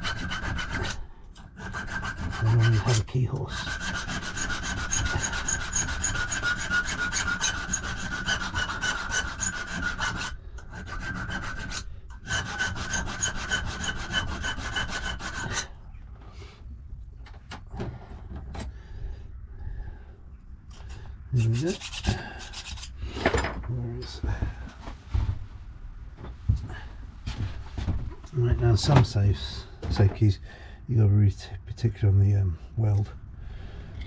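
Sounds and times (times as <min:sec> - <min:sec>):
hand file rasping on metal: 0:00.0 - 0:15.8, 0:20.8 - 0:23.0
light scrapes and knocks: 0:26.2 - 0:30.3.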